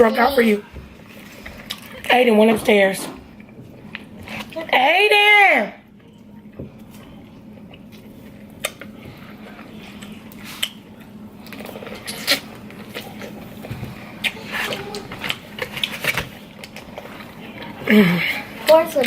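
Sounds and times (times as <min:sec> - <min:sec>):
wet squishing and chewing: 0:00.9 - 0:02.2, 0:03.3 - 0:04.7, 0:05.9 - 0:19.0.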